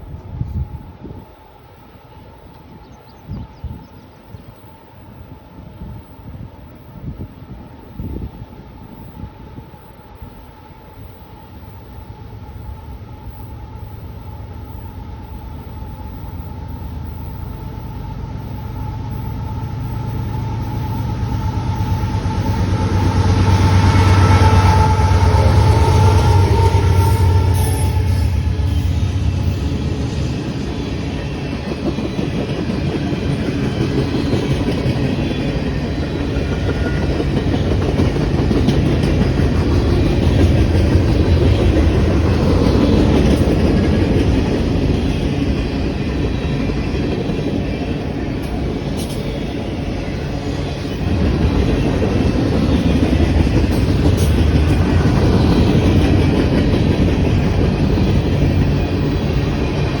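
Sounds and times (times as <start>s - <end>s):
train wheels clickety-clack: 7.2s - 60.0s.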